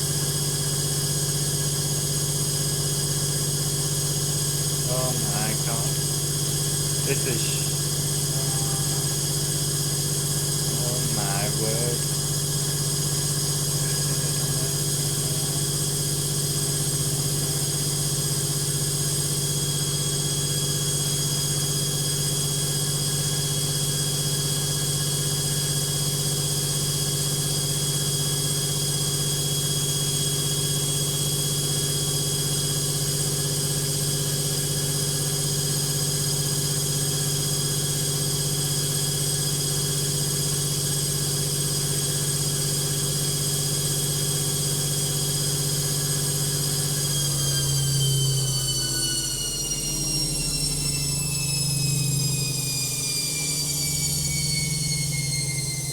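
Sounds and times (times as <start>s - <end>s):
high motor whine: 4.6s - 19.2s.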